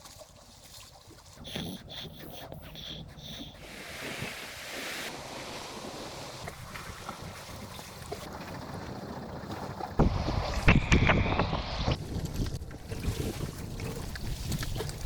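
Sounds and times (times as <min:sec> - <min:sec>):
wind: 0:00.0 - 0:15.0
sea surf: 0:03.6 - 0:12.0
wind buffeting microphone: 0:06.4 - 0:15.0.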